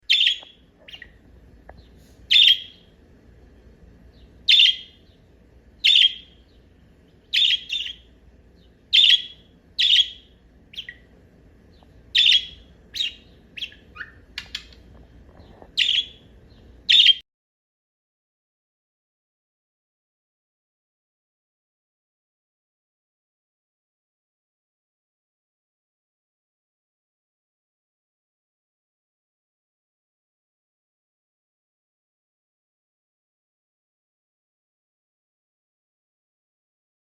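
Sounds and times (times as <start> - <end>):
faint background hum: 0.0 - 17.2
cockatiels chirping: 0.1 - 1.2, 1.8 - 2.8, 4.5 - 5.0, 5.8 - 6.5, 7.3 - 8.1, 8.9 - 11.0, 12.1 - 16.3, 16.9 - 17.2.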